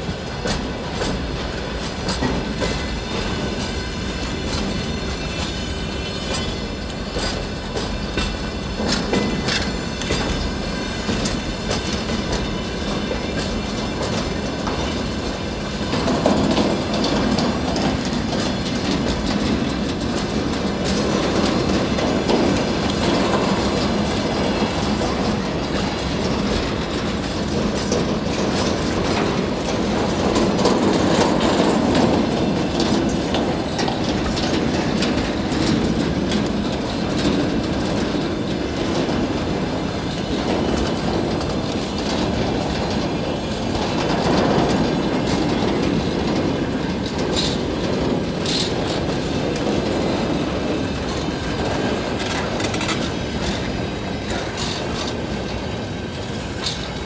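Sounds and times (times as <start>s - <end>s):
freight train rumble: 0.0s - 57.0s
train wheels clicking over rail joints: 0.0s - 57.0s.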